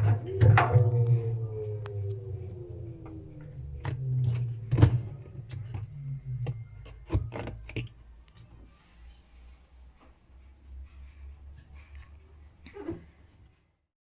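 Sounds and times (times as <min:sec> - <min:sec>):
washing machine drum hum: 0:00.0 - 0:07.9.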